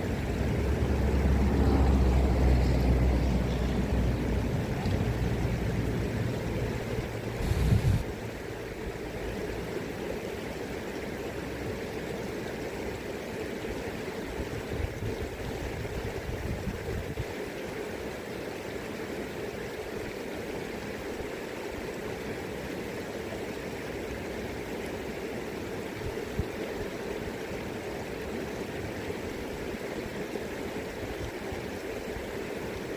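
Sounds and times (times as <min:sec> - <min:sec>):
river flowing: 0:00.0 - 0:32.9
wind buffeting microphone: 0:07.4 - 0:08.1.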